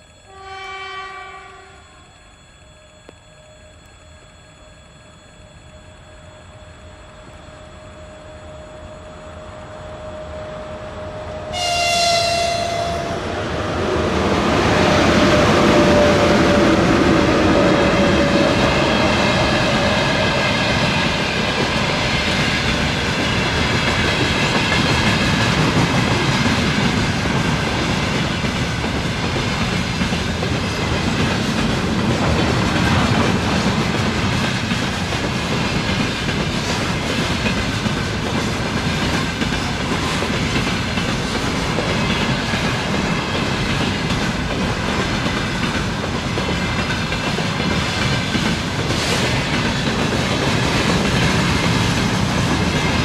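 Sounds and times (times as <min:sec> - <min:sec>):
locomotive horn blast: 0:00.2 - 0:02.1, 0:11.5 - 0:13.3.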